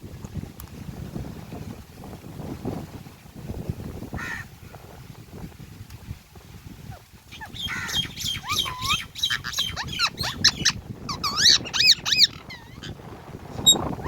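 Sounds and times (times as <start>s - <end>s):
parakeet chirping: 7.4s - 12.9s.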